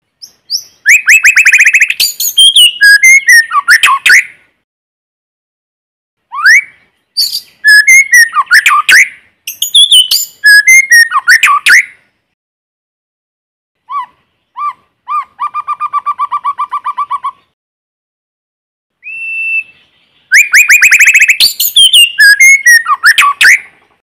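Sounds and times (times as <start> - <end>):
rapid repeated bird notes: 0.2 - 4.3, 6.6 - 12.0, 20.2 - 24.0
bird singing whistled phrases: 0.2 - 4.4, 6.3 - 12.0, 13.9 - 17.6, 19.0 - 23.8.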